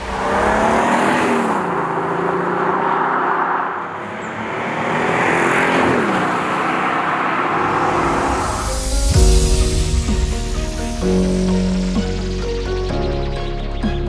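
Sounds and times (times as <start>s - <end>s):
car engine accelerating hard: 0.0s - 11.2s.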